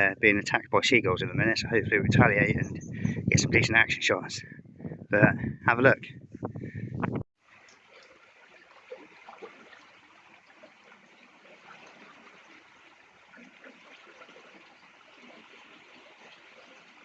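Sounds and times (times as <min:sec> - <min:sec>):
rush of moving water: 0:07.4 - 0:17.0.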